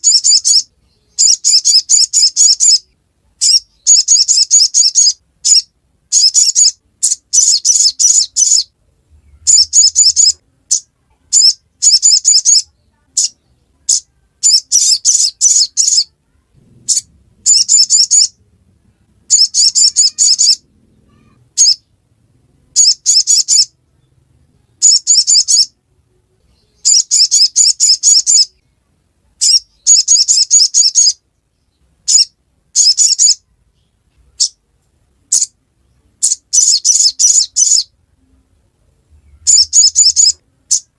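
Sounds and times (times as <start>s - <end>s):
bird chattering call: 0.0s - 16.1s, 16.9s - 18.4s, 19.3s - 21.9s, 39.3s - 40.9s.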